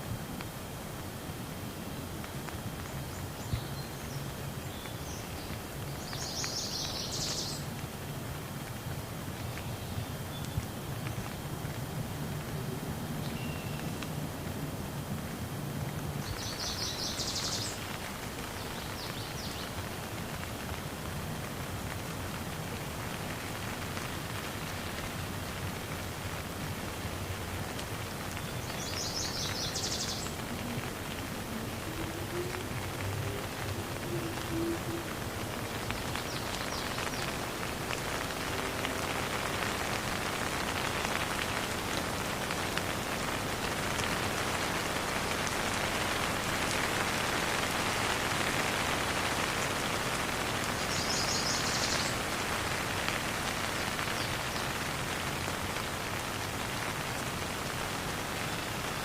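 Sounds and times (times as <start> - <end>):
steady rain: 0.0 - 59.0
faint drip ticks: 2.2 - 40.0
bird chirping: 28.4 - 30.6.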